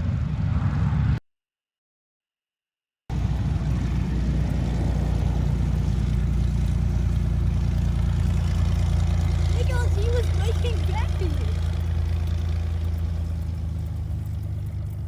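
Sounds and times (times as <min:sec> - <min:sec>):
plane piston engine droning: 0:03.1 - 0:15.0.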